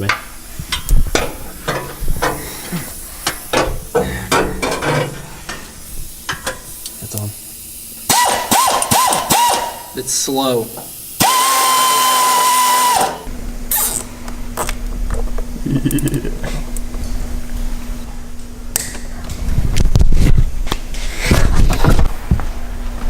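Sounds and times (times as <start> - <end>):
small electric motor whirring: 11.2 - 14.0.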